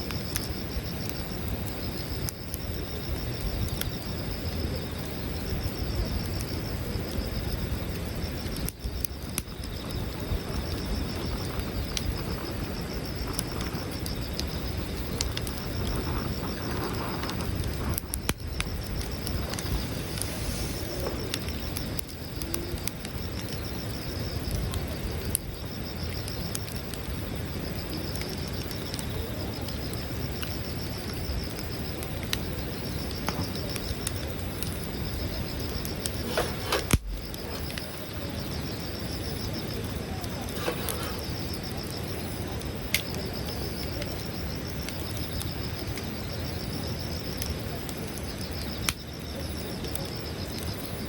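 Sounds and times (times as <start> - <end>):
campfire crackling and popping: 0.0 - 51.0
crickets chirping: 0.0 - 51.0.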